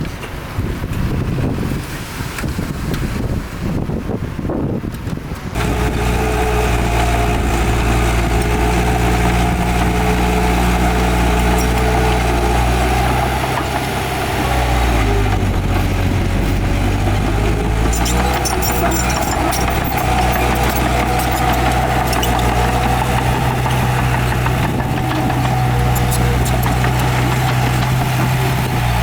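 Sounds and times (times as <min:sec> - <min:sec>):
heavy diesel engine running: 0:05.5 - 0:29.0.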